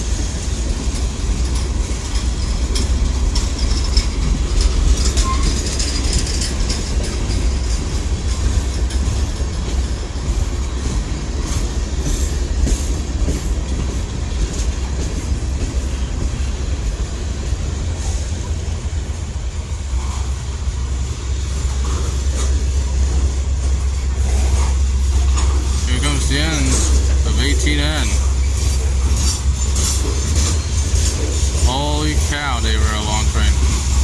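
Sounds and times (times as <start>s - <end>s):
freight train cars rolling past: 0.0s - 34.0s.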